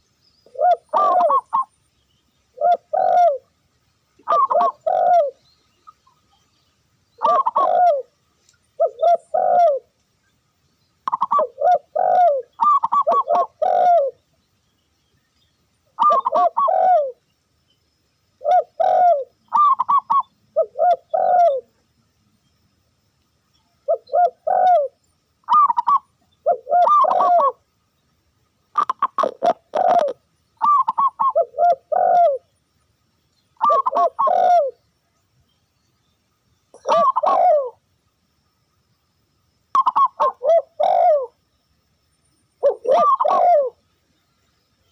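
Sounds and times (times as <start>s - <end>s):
dove cooing: 0.4s - 1.7s, 2.5s - 3.5s, 4.2s - 5.4s, 7.2s - 8.1s, 8.8s - 9.9s, 11.0s - 14.2s, 16.0s - 17.2s, 18.4s - 21.7s, 23.8s - 27.6s, 28.8s - 32.5s, 33.6s - 34.8s, 36.8s - 37.8s, 39.7s - 41.4s, 42.6s - 43.8s.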